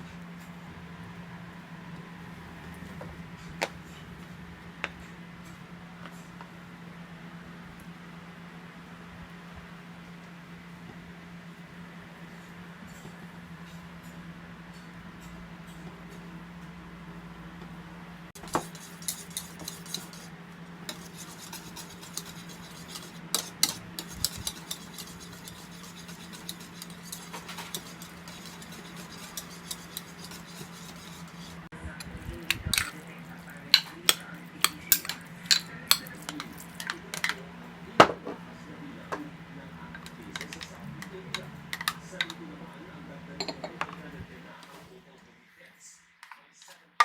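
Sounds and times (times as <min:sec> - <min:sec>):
steady low hum: 0:00.0 - 0:46.0
spoon clinking against a bowl: 0:18.4 - 0:20.3, 0:20.9 - 0:31.5, 0:32.7 - 0:33.0, 0:33.7 - 0:37.4, 0:43.4 - 0:43.9.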